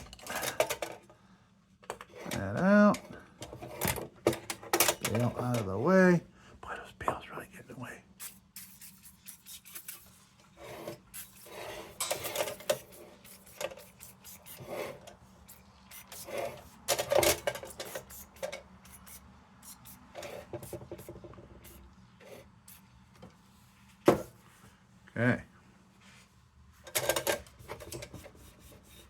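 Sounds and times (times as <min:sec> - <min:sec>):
cloth rag rubbing metal: 0:08.2 - 0:10.3.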